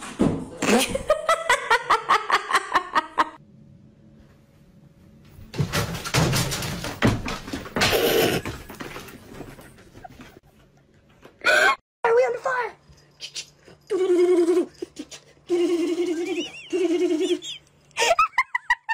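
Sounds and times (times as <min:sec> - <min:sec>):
knocks and clattering: 0:05.4 - 0:10.4.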